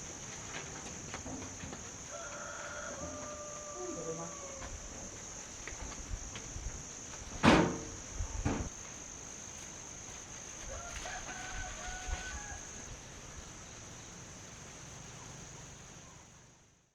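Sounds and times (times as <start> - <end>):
rooster crowing: 2.0 - 4.9, 10.6 - 12.9.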